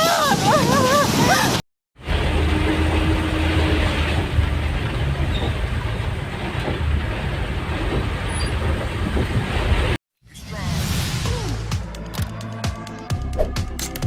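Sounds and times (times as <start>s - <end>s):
wind buffeting microphone: 4.2s - 10.0s.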